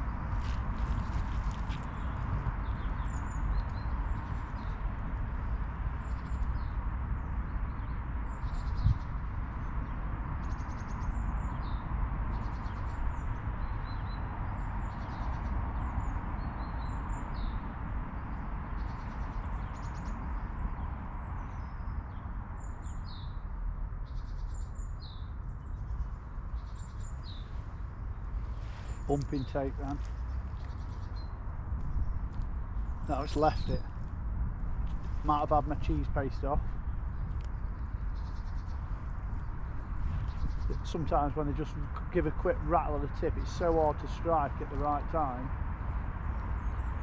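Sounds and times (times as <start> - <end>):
small birds chirping and trilling: 0.0 - 47.0.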